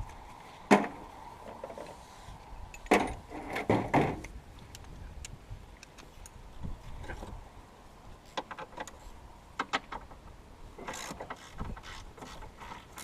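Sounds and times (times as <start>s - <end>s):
tools and car parts clanking: 2.7s - 4.3s.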